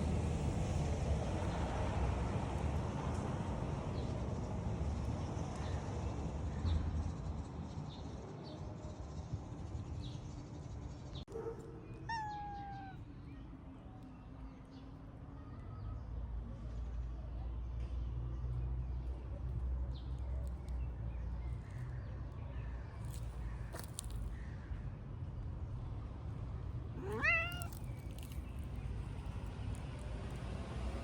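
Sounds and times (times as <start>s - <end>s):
cat meowing: 12.0s - 13.1s, 27.0s - 27.9s.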